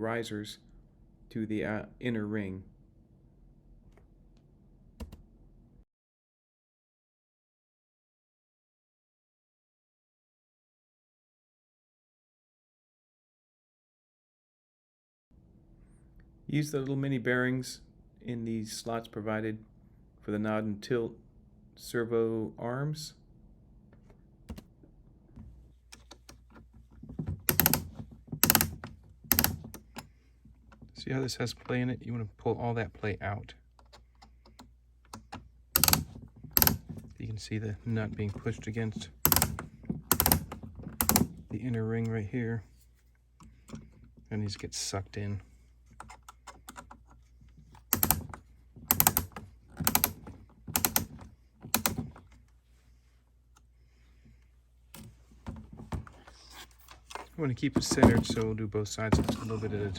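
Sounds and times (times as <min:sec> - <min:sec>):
screwdriver rapid clicking: 0:27.4 - 0:30.0, 0:35.8 - 0:36.8, 0:39.2 - 0:41.3, 0:47.9 - 0:51.1, 0:51.7 - 0:52.0.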